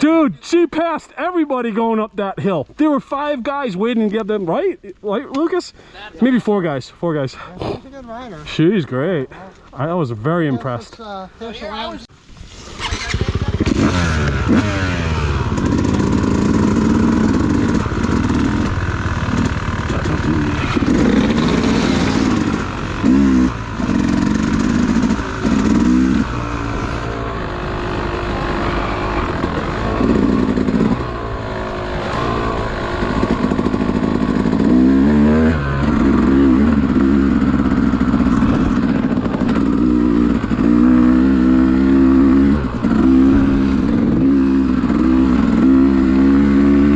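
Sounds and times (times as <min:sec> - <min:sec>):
dirt bike engine revving: 0:12.5 - 0:46.9.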